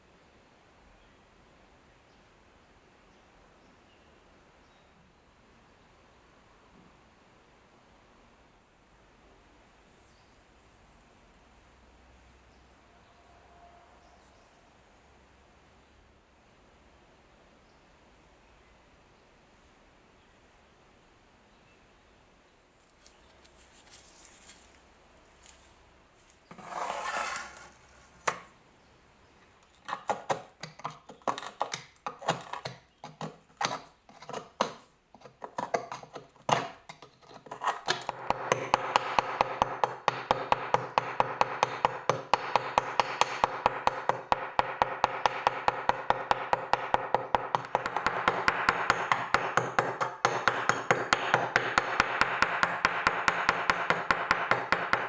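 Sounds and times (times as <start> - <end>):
metal scrape: 26.4 - 28.5
fast even tapping on metal: 38.0 - 55.0
knocking on metal: 38.1 - 55.0.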